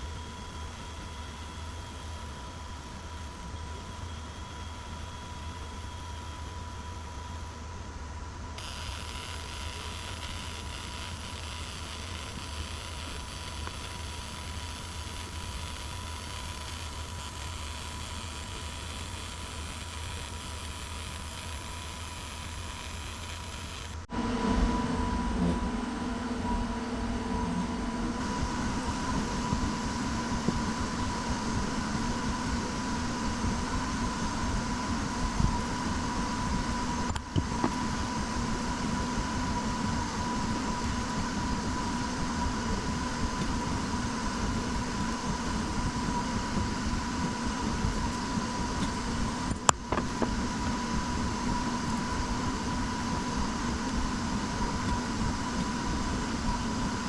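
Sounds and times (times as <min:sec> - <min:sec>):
workshop machine whining: 0:00.0 - 0:57.0.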